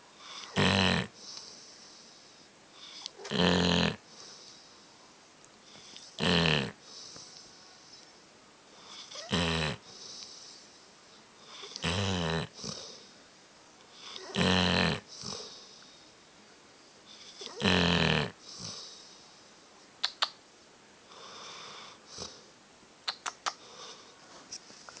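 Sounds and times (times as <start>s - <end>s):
dog snoring loudly: 0.2s - 1.2s, 2.8s - 4.1s, 5.8s - 6.9s, 8.8s - 10.1s, 11.4s - 13.0s, 14.0s - 15.7s, 17.2s - 19.0s
sharp clicks: 20.0s - 20.4s, 23.1s - 23.6s.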